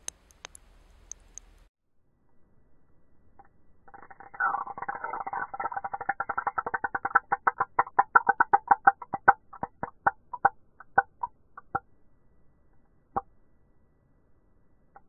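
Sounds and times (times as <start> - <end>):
air bubbles popping from ice: 3.9 - 11.8.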